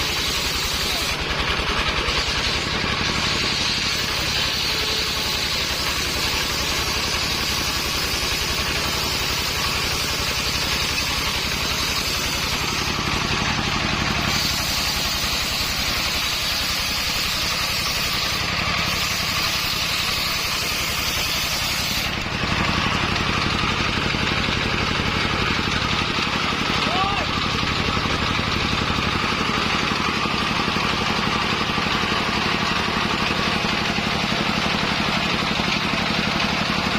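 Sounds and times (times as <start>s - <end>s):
saw blade hissing: 0.0s - 23.8s
sawmill engine running: 0.0s - 36.9s.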